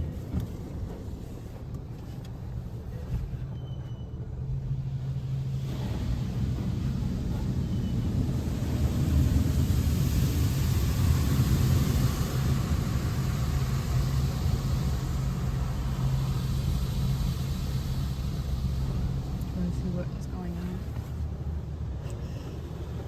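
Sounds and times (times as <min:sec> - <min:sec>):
car engine hum: 0:04.2 - 0:23.0
rushing noise: 0:04.5 - 0:21.9.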